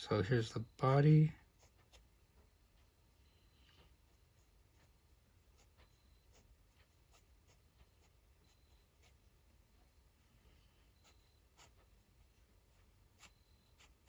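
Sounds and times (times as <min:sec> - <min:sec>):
pen scratching on paper: 0:01.4 - 0:02.2, 0:04.0 - 0:09.6, 0:11.0 - 0:14.0
pen nib squeaks: 0:04.4 - 0:09.3, 0:11.0 - 0:12.0, 0:12.7 - 0:14.0.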